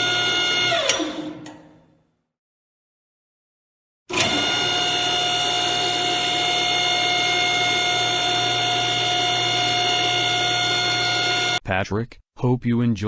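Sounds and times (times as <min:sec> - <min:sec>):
car wash machinery whirring: 0:00.0 - 0:01.7, 0:04.1 - 0:11.6.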